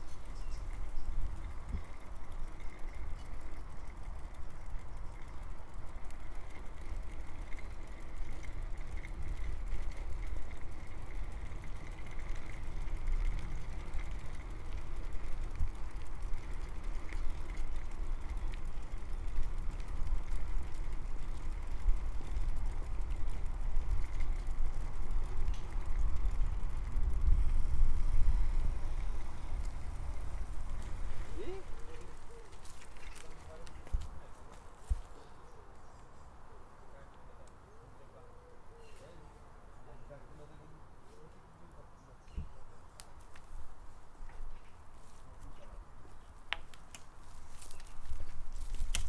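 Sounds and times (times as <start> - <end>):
bicycle riding noise: 0.0 - 41.8, 42.4 - 49.0
wind on microphone: 25.8 - 31.9.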